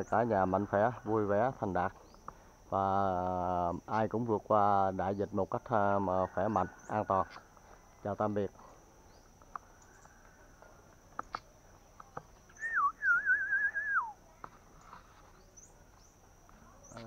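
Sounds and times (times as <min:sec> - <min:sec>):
bird warbling whistle: 0:12.5 - 0:14.2.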